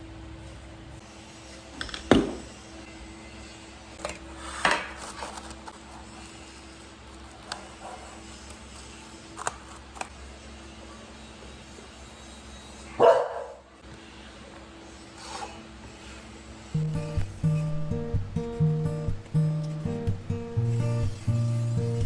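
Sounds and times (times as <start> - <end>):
steady low hum: 13.7 - 22.0.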